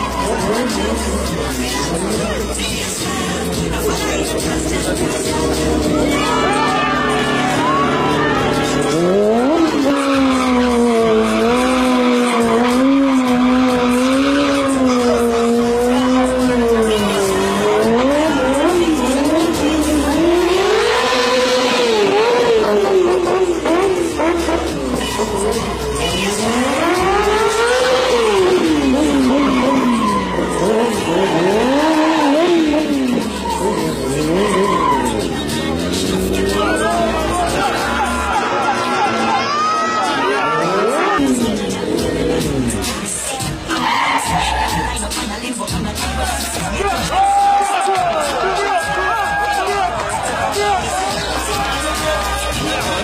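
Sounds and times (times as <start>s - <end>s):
motorcycle engine at high revs: 2.8s - 38.1s, 40.4s - 43.2s.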